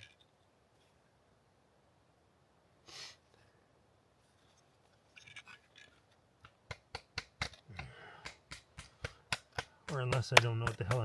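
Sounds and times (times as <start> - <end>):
hatchet knapping rock: 6.4 - 11.0.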